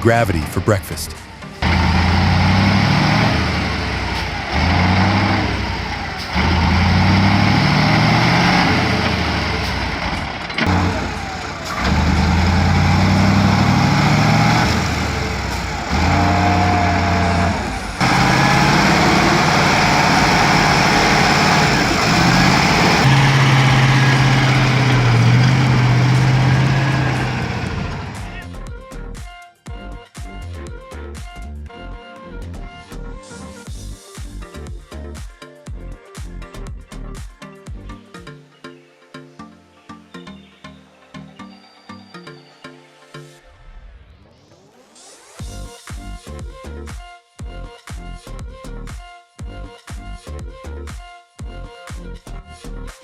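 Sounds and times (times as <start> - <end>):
truck diesel engines labouring: 0.0 - 28.4.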